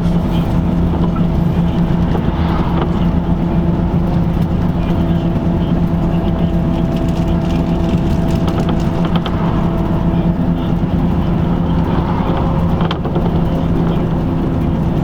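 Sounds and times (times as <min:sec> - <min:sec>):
bus engine drone: 0:00.0 - 0:15.0
road noise: 0:00.0 - 0:15.0
light rattles: 0:04.1 - 0:14.4.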